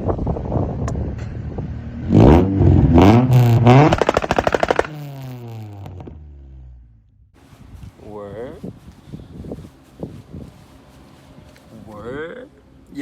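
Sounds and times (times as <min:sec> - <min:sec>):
car engine revving: 0:01.5 - 0:07.2
rev limiter stuttering crackle: 0:03.0 - 0:06.8.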